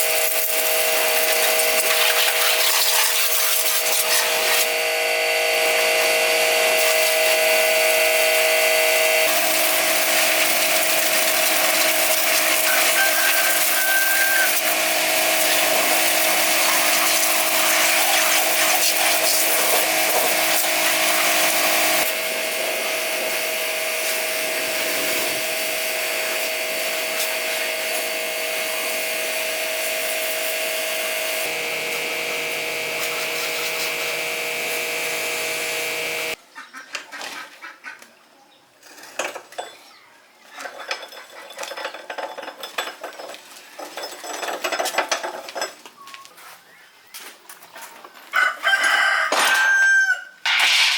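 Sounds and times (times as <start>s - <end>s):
power tool whining: 0.0s - 36.4s.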